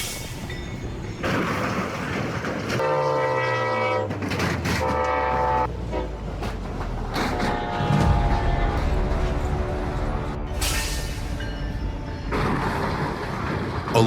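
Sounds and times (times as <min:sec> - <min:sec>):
moving train rumble: 0:00.0 - 0:14.0
train horn blasts: 0:02.8 - 0:06.3, 0:07.2 - 0:12.7.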